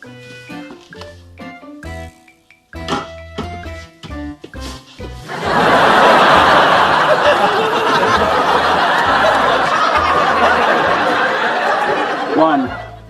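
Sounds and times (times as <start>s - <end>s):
background music with bass line: 0.0s - 13.0s
studio audience laughter: 5.3s - 13.0s.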